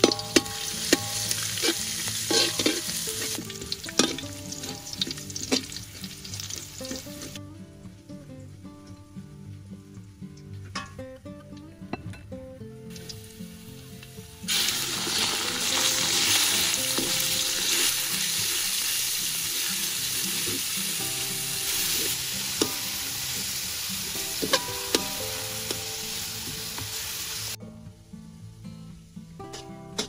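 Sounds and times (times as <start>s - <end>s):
ladle clinking on wok: 0.0s - 5.7s
metal ladle scraping wok: 0.0s - 5.8s
meat sizzling in a wok: 0.0s - 7.4s, 13.0s - 27.6s.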